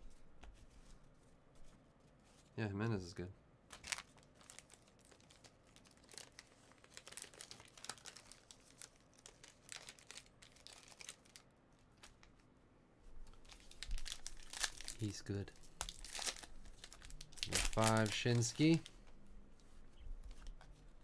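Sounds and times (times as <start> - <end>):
cards crinkling and rustling: 3.7 - 12.4, 13.2 - 21.0.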